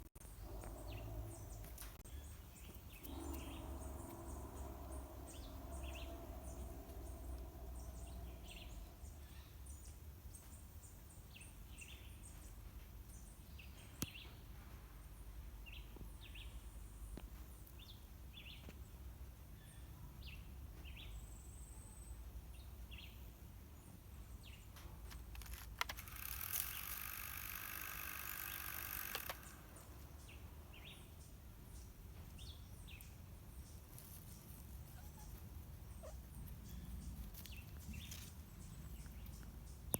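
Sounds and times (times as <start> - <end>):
birds chirping: 0.0 - 10.5
hum with steady tones: 0.2 - 9.7
low background rumble: 0.2 - 9.9.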